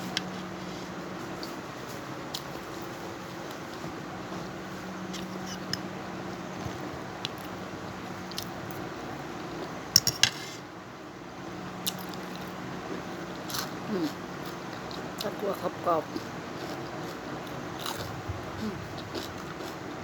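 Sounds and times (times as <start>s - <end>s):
steady low hum: 0.0s - 20.0s
utensils clinking on dishes: 10.0s - 10.4s.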